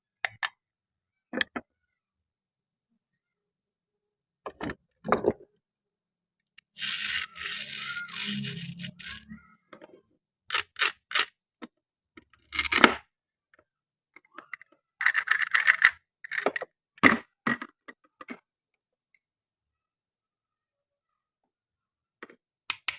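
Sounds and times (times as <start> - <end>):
hard toy pieces clicking: 6.6 - 9.3, 10.5 - 11.3, 15.0 - 16.6
toy piece scraping: 6.6 - 9.4, 10.5 - 11.4, 12.4 - 13.0, 15.0 - 16.6.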